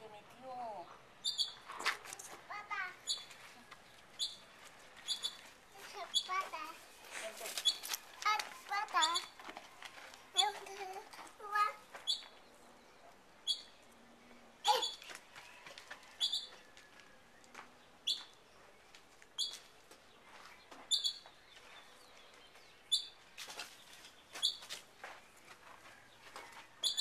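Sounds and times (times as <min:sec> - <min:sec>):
bird chirping: 0:01.2 - 0:01.7, 0:03.0 - 0:06.4, 0:07.0 - 0:09.4, 0:11.9 - 0:15.2, 0:16.2 - 0:16.7, 0:17.4 - 0:24.8, 0:26.8 - 0:27.0.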